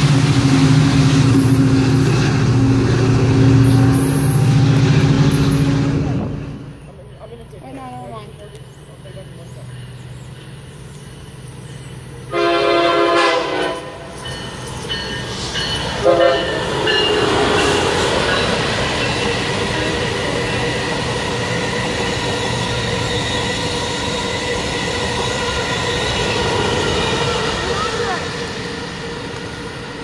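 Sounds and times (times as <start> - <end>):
train whine: 0.0 - 30.0
wheels rushing on rail: 0.0 - 30.0
train horn blasts: 12.3 - 14.2, 16.0 - 17.8.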